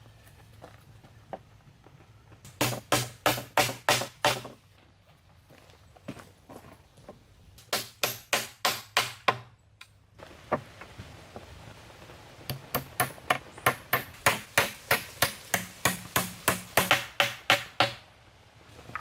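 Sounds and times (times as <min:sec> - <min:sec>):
hand tool striking wood: 0:02.5 - 0:04.6, 0:07.6 - 0:09.5, 0:12.5 - 0:18.0.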